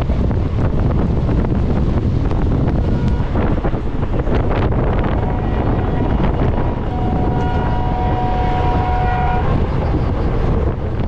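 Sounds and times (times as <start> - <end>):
train running rumble: 0.0 - 11.0
wind buffeting microphone: 0.0 - 11.0
two-note horn-like tone: 2.7 - 9.7.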